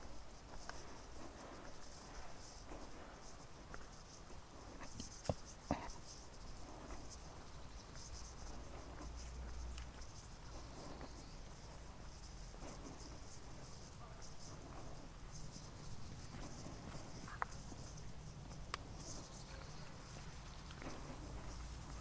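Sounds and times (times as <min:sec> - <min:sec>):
insects chirping: 0:06.5 - 0:22.0.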